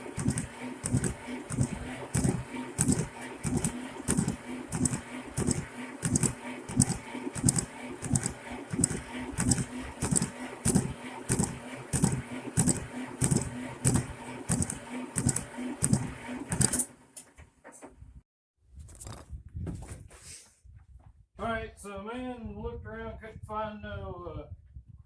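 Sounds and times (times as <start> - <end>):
starter motor cranking diesel engine: 0.0 - 17.2.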